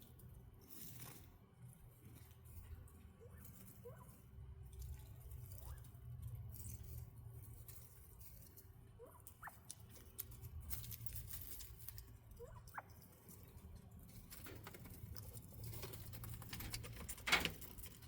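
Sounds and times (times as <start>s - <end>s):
birds pecking and rustling: 0.0s - 18.0s
quail peeping: 9.0s - 9.8s.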